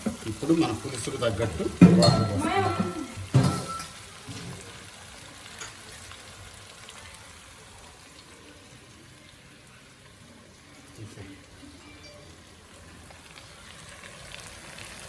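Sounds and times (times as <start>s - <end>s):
curry sizzling in a pan: 0.0s - 15.0s.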